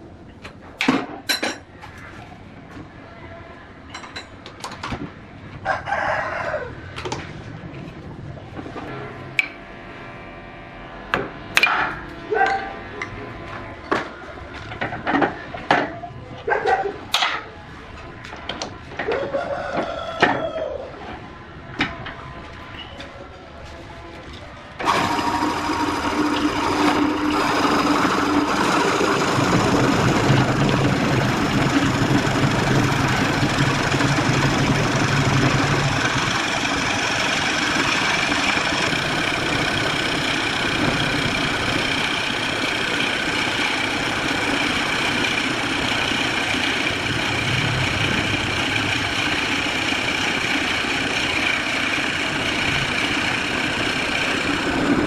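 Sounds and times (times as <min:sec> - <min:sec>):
wood lathe cutting: 0:24.8 - 0:55.0.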